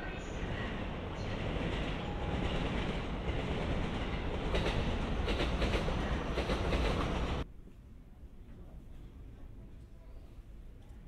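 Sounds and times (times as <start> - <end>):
trains rumbling: 0.0 - 7.5
wheels clacking over rail joints: 1.2 - 7.4.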